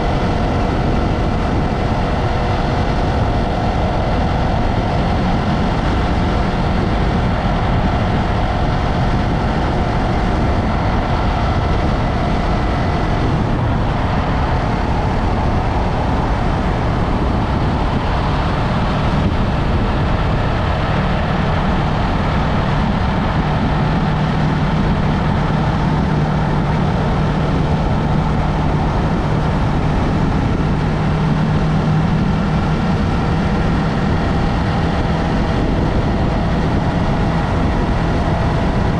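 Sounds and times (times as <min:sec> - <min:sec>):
motorcycle engine running: 0:00.0 - 0:38.9
road noise: 0:00.0 - 0:38.9.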